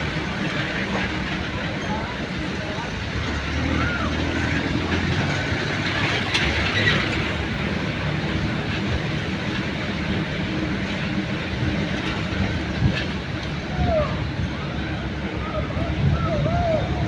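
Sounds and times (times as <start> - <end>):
jeep engine and road rumble: 0.0 - 17.0.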